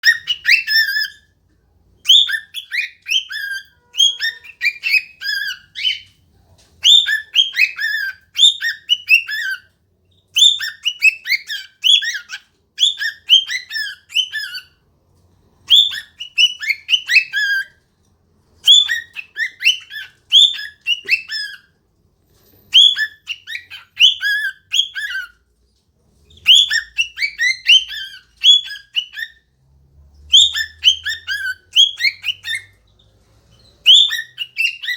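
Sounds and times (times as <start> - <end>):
cockatiel whistling chirps: 0.0 - 1.3, 2.0 - 6.1, 6.8 - 9.7, 10.3 - 14.8, 15.6 - 17.8, 18.6 - 21.7, 22.7 - 25.4, 26.3 - 29.4, 30.3 - 32.8, 33.5 - 34.9.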